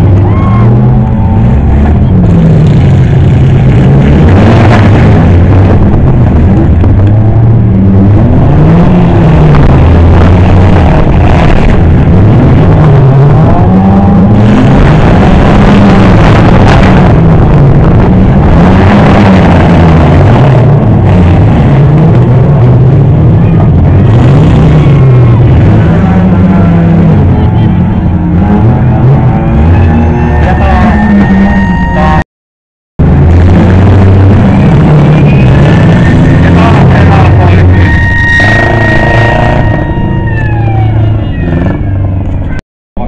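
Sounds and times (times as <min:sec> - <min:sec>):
racing car engines revving: 0:00.0 - 0:32.2, 0:33.0 - 0:42.6.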